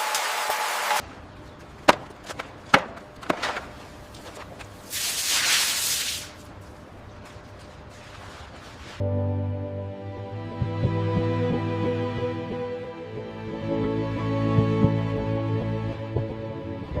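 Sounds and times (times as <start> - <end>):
construction knocks: 1.8 - 4.7
rain-like hiss: 4.8 - 6.4.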